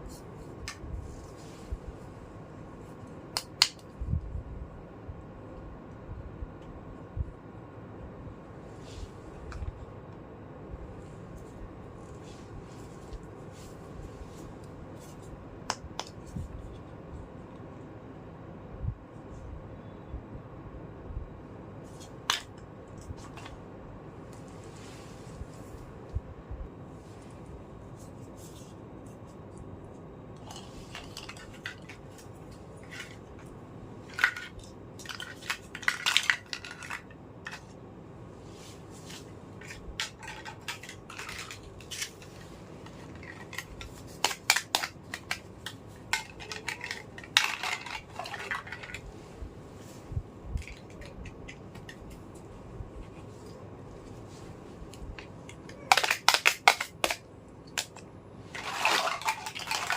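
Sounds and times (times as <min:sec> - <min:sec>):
plastic toys clattering: 0:21.9 - 0:23.6, 0:30.4 - 0:37.8, 0:39.0 - 0:49.1, 0:50.6 - 0:52.4, 0:55.2 - 0:59.9.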